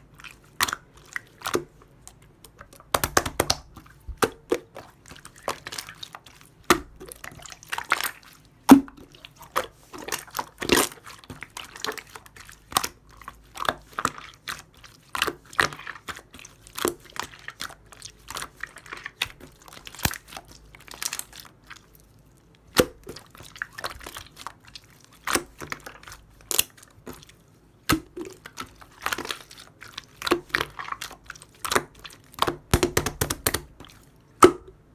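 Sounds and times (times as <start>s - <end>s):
slime squishing and popping: 0.3s - 13.0s, 22.6s - 34.9s.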